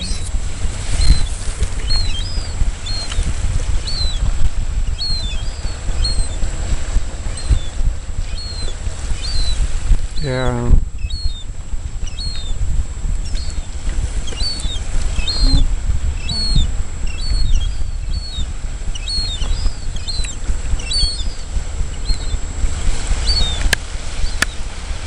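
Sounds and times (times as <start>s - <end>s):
steady low rumble: 0.0s - 25.0s
short high bird chirps: 3.8s - 4.3s, 8.3s - 9.6s, 11.0s - 11.4s, 12.1s - 12.5s, 14.3s - 21.4s.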